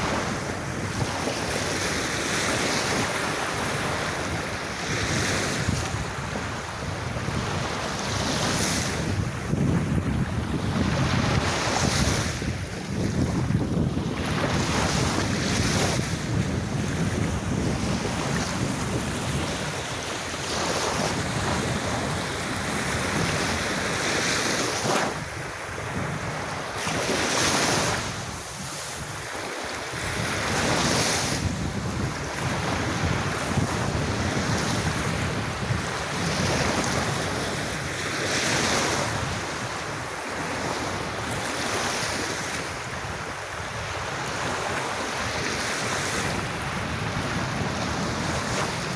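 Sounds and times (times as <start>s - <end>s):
sea waves breaking on beach: 0.0s - 48.9s
wind buffeting microphone: 0.0s - 48.9s.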